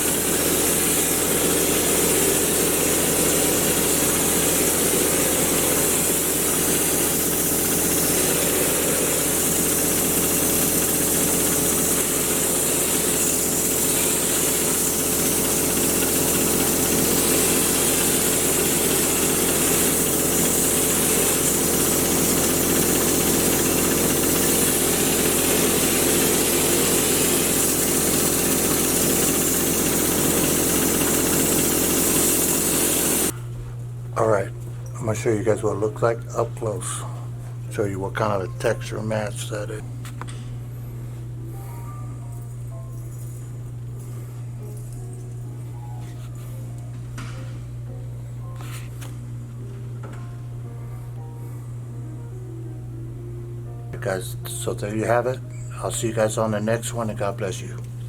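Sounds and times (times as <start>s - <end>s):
sprayer motor hum: 0.0s - 33.4s.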